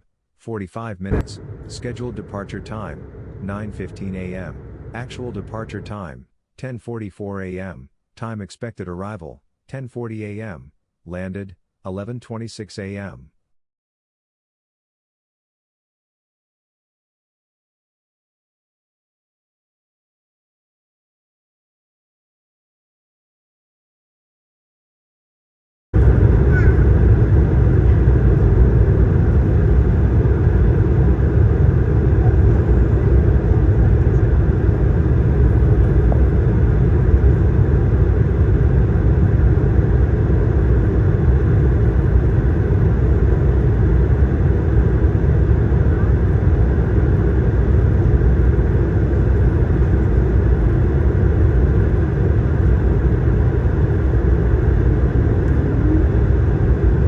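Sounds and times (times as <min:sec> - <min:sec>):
airliner cabin rumble: 0:01.1 - 0:06.1, 0:26.0 - 0:57.0.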